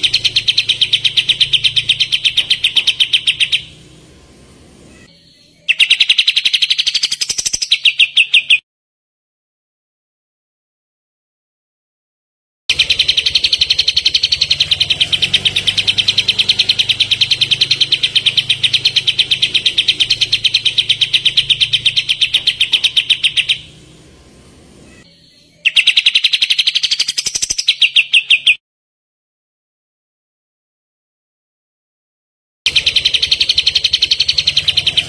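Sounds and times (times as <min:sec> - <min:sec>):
songbird rapid trill: 0:00.0 - 0:03.9, 0:04.9 - 0:08.6, 0:12.7 - 0:24.0, 0:24.8 - 0:28.6, 0:32.7 - 0:35.0.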